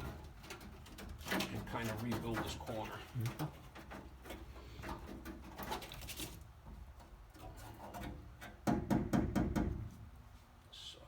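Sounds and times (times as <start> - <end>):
knocking on car sheet metal: 8.6 - 9.8.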